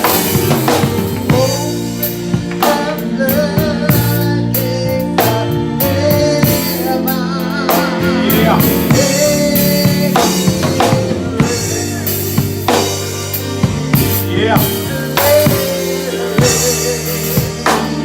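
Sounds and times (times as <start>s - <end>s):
drum kit: 0.0s - 18.0s
organ chords: 0.0s - 18.0s
person singing: 0.0s - 18.0s.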